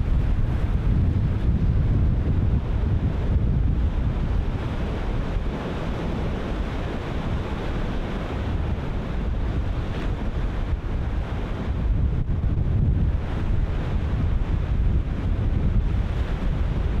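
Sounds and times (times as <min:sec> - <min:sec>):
ocean surf breaking: 0:00.0 - 0:12.0
wind buffeting microphone: 0:00.0 - 0:17.0.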